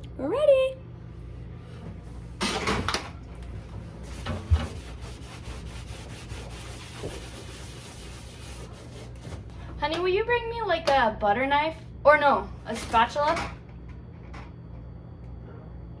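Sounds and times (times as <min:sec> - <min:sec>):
scraping inside a refrigerator: 0:01.4 - 0:09.6.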